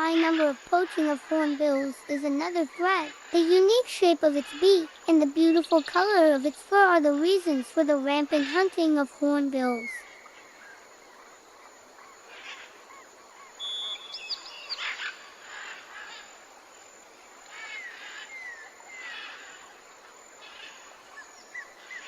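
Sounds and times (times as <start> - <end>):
birds chirping: 0.0 - 16.3
steady background hiss: 0.0 - 22.0.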